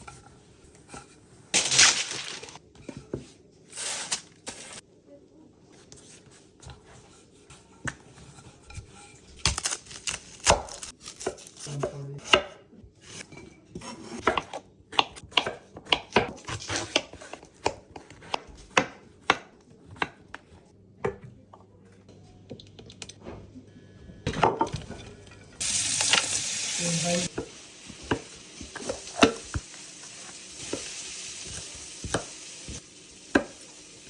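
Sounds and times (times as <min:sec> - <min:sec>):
knife chopping on cutting board: 0:13.8 - 0:20.4
kitchen utensils and dishes clattering: 0:24.3 - 0:33.6.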